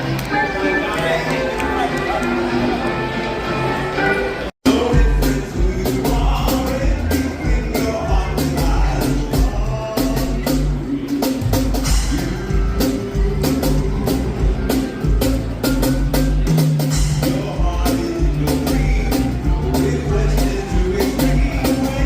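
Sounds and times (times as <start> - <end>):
live band playing: 0.0 - 22.0
person singing: 4.6 - 15.4, 17.0 - 22.0
heavy bass and drums: 4.6 - 22.0.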